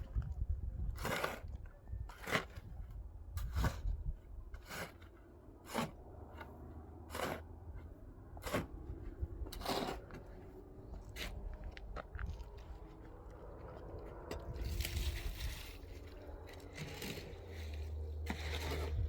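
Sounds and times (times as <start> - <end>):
scraping strokes: 3.4 - 11.6, 14.2 - 19.0.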